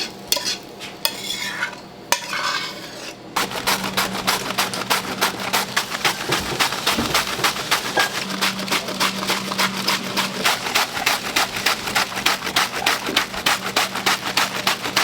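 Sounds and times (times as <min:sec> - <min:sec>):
knife chopping on cutting board: 0:03.4 - 0:15.0.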